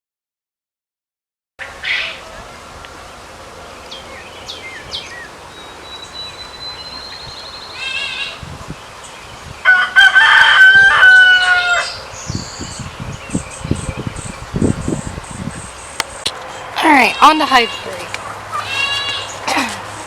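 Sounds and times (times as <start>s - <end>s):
rooster crowing: 9.6s - 12.0s, 17.5s - 19.4s.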